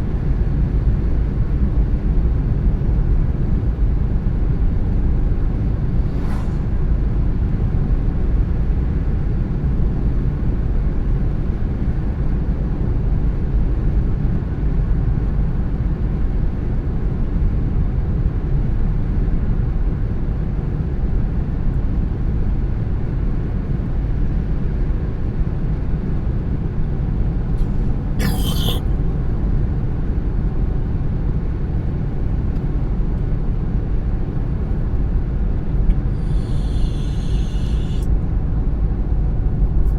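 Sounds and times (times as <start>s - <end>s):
car engine and tyres rumbling: 5.1s - 7.9s
short hiss burst: 28.2s - 28.8s, 36.2s - 38.1s.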